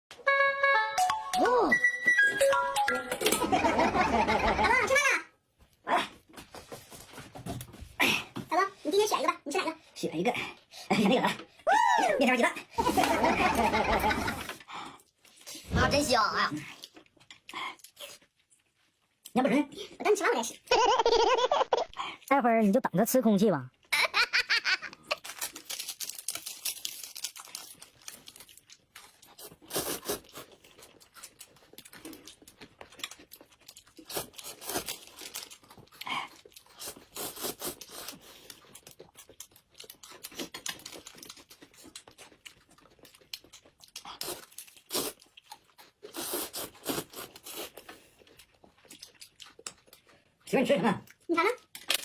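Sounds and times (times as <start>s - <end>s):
person chewing and crunching food: 16.6s - 20.0s, 24.9s - 52.0s.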